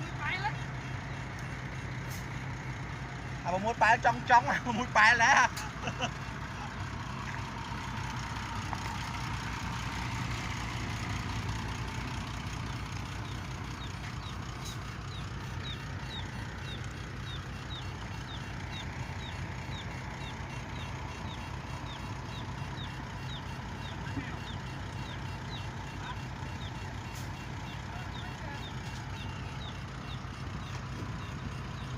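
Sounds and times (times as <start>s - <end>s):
heavy machinery engine humming: 0.0s - 31.9s.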